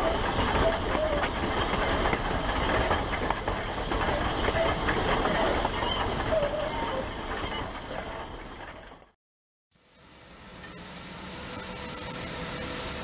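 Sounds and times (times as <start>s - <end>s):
train wheels clattering on track: 0.0s - 9.2s.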